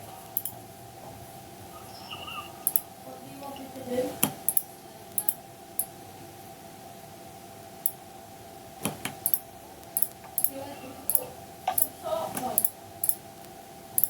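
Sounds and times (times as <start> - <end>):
faint hum: 0.0 - 14.0
mouse and keyboard clicks: 0.4 - 0.6.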